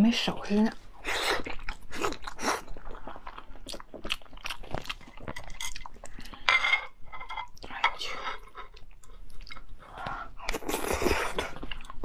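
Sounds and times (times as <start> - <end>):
mouth chewing crunchy food: 1.0 - 6.5, 8.4 - 12.0.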